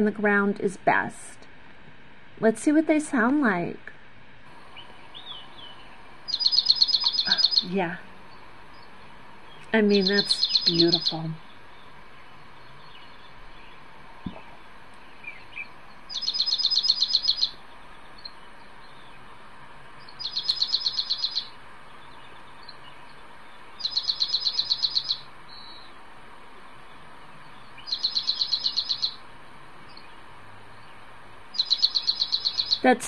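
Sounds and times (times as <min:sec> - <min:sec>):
bird trilling: 0:05.1 - 0:07.7, 0:09.7 - 0:11.5, 0:15.2 - 0:17.6, 0:20.2 - 0:21.6, 0:23.8 - 0:25.9, 0:27.8 - 0:29.2, 0:31.5 - 0:32.9.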